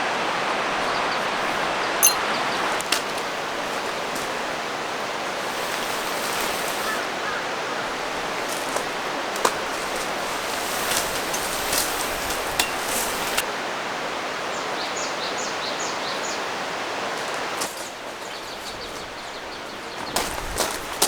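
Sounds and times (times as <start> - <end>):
mountain stream rushing: 0.0 - 18.2
bird chirping: 2.0 - 2.6.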